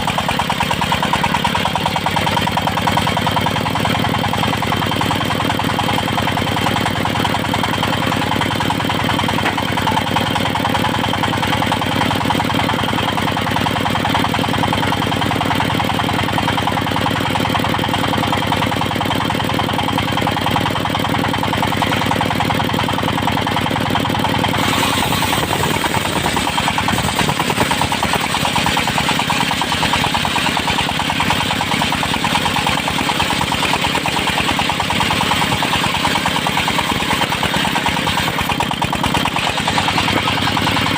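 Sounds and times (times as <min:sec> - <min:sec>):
sawmill engine running: 0:00.0 - 0:40.9
saw blade ripping wood: 0:09.4 - 0:09.8, 0:24.5 - 0:29.6.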